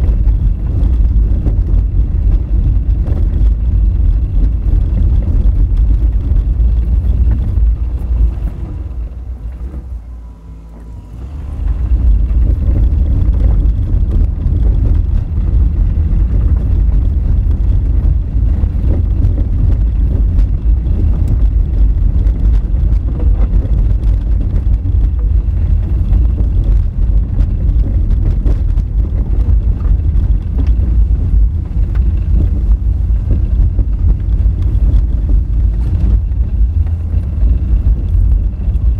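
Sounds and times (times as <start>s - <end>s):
tyres rumbling over gravel: 0.0s - 38.9s.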